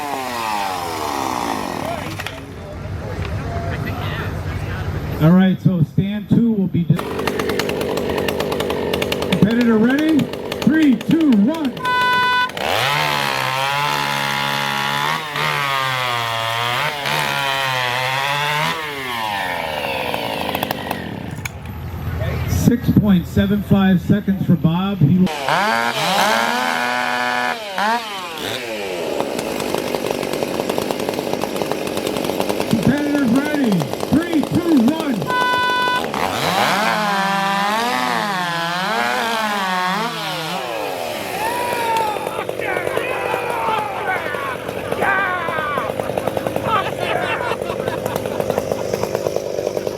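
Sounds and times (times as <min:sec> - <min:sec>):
chainsaw cutting through log: 0:00.0 - 0:02.6, 0:07.0 - 0:21.6, 0:25.2 - 0:49.9
steady start tone: 0:07.0 - 0:12.8, 0:34.9 - 0:36.4.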